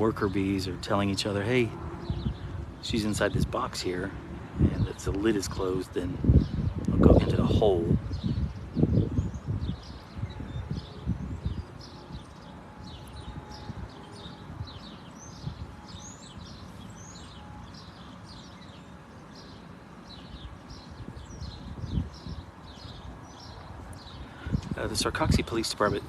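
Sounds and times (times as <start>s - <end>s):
birds chirping: 0.0s - 26.0s
wind thumps on microphone: 1.8s - 3.6s, 6.1s - 13.9s, 20.9s - 26.0s.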